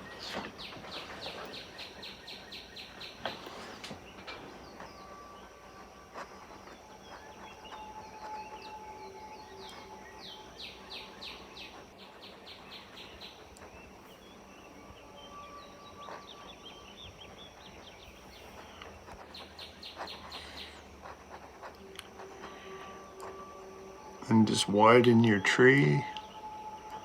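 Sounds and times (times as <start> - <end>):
bird song high notes: 0.0 - 27.0
steady high hiss: 0.0 - 27.0.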